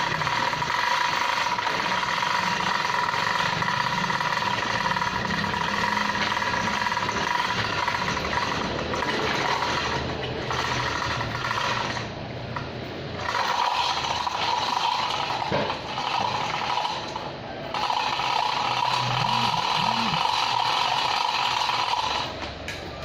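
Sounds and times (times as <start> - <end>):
machinery high whine: 0.0 - 23.0.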